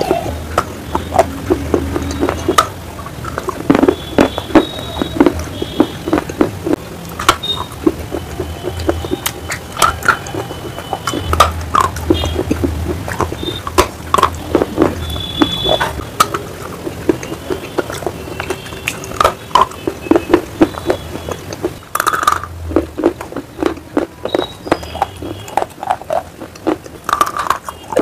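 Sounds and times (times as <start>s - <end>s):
chewing on crunching stone: 0.0s - 28.0s.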